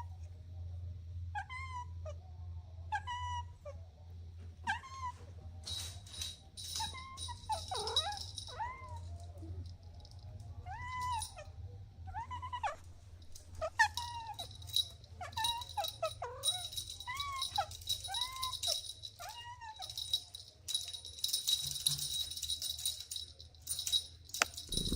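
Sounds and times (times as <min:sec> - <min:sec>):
light jingling rattle: 0:04.8 - 0:11.5, 0:12.5 - 0:24.9
kittens meowing: 0:24.7 - 0:24.9.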